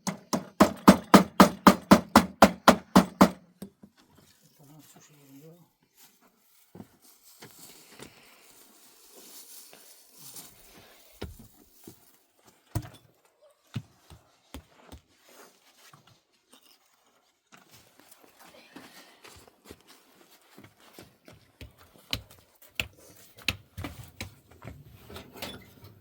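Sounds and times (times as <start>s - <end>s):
knocks and thuds: 0.0s - 3.4s.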